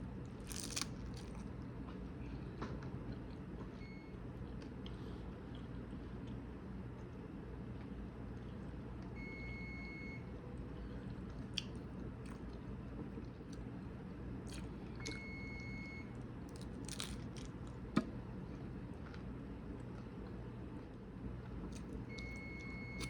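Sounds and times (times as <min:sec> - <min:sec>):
steady low hum: 0:00.0 - 0:23.0
chewing crunchy food: 0:00.2 - 0:02.0, 0:10.6 - 0:13.8, 0:14.4 - 0:15.3, 0:16.1 - 0:23.0.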